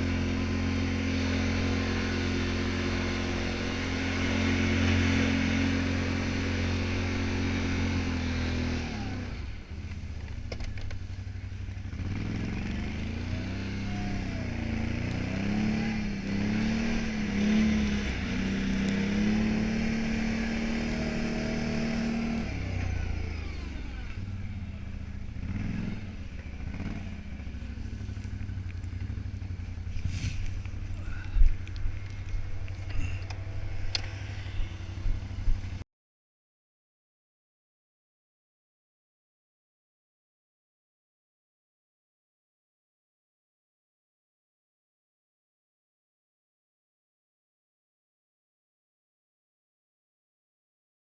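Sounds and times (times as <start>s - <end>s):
atv engine running: 0.0s - 35.8s.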